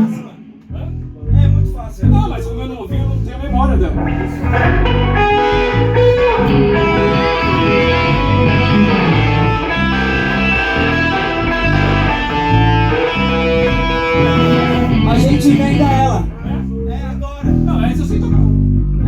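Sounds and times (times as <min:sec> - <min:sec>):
bass line: 0:00.0 - 0:19.0
electric guitar lines: 0:03.7 - 0:16.4.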